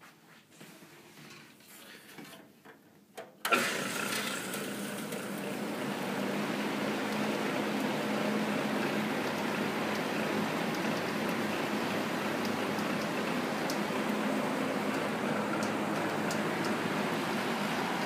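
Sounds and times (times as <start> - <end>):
exhaust fan running: 3.4 - 18.0.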